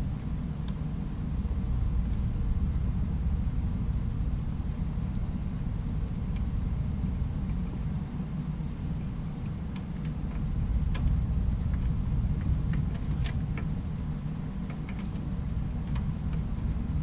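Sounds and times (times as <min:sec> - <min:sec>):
low rumble: 0:00.0 - 0:14.6.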